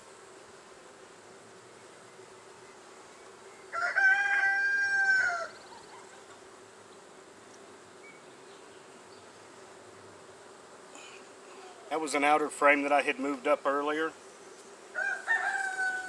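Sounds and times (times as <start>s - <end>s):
honey bees buzzing: 0.0s - 16.0s
rooster crowing: 3.7s - 5.6s, 14.9s - 16.0s.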